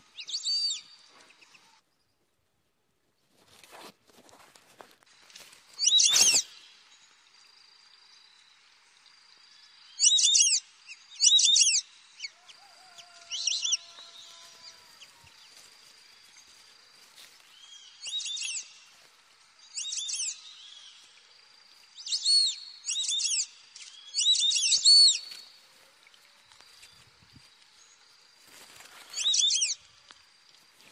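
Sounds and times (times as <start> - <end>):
bird chirping calls: 0.0 - 1.8, 5.7 - 7.0, 9.6 - 15.6, 17.5 - 19.0, 19.6 - 28.1, 29.0 - 29.9.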